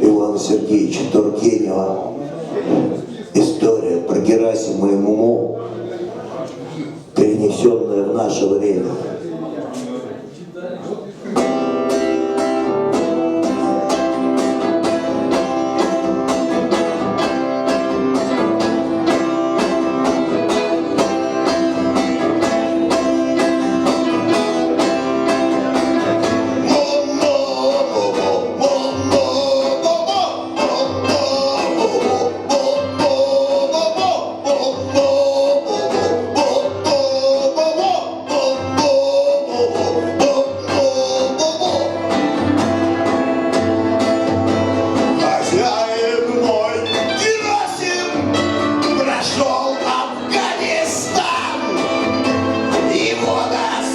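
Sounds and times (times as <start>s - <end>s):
acoustic guitar strumming: 11.3s - 53.9s.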